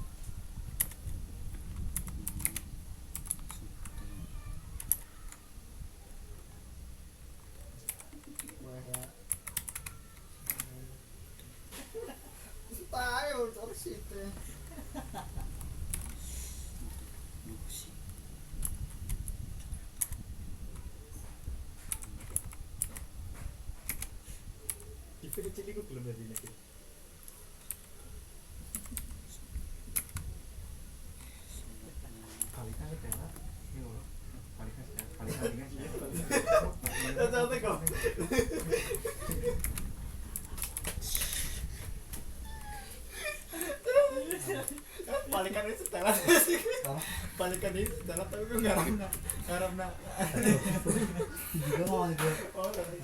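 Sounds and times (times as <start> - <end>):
typing on computer keyboard: 0.8 - 4.0, 4.8 - 5.4, 7.8 - 10.8, 15.5 - 16.2, 23.8 - 24.1, 26.3 - 26.6, 28.7 - 29.2, 38.6 - 41.0.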